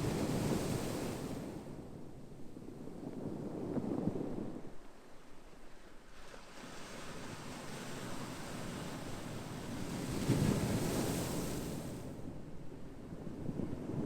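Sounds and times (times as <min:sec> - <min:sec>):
ocean waves breaking on shore: 0:00.0 - 0:01.6.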